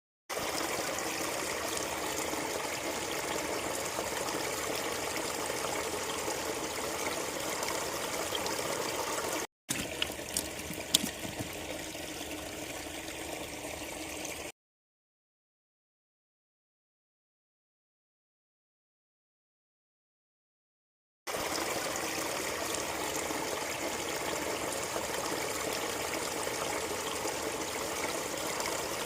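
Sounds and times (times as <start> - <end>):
water flowing in canal: 0.3 - 14.5, 21.3 - 29.0.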